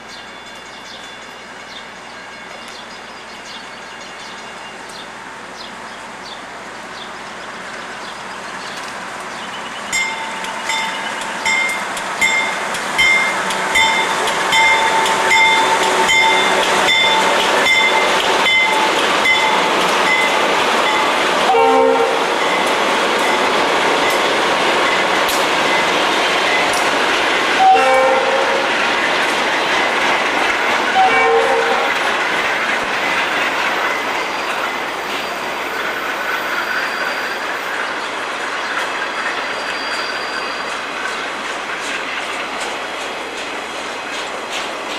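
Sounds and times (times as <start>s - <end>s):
freight train passing: 0.0s - 44.9s
locomotive horn blast: 21.4s - 22.3s, 27.6s - 28.8s, 30.9s - 32.0s.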